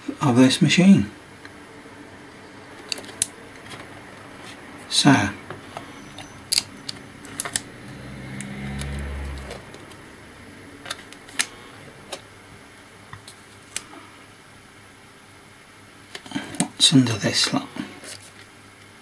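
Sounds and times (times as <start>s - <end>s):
low hum: 0.3s - 15.0s
laptop parts clicking: 2.8s - 3.9s, 5.8s - 7.6s.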